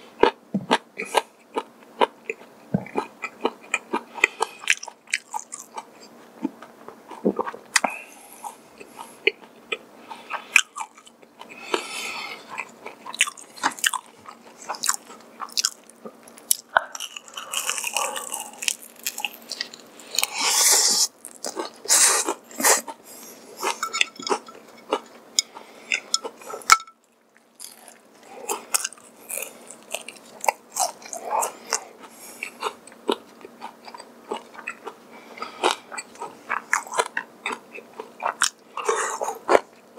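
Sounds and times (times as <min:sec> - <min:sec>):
wet chewing: 0:12.4 - 0:23.0.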